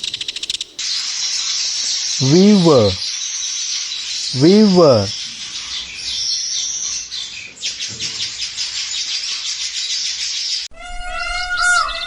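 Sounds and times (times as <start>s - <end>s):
weaver bird chattering: 0.0s - 1.4s.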